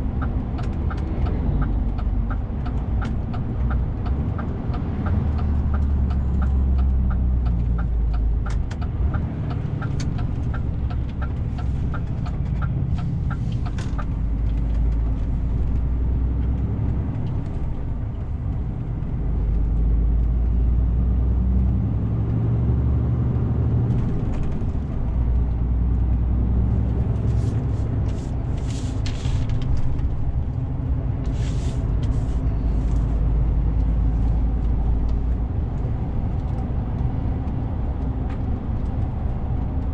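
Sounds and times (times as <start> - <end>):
truck diesel engine running: 0.0 - 20.1
turn signal ticking: 0.0 - 23.3, 23.9 - 39.9.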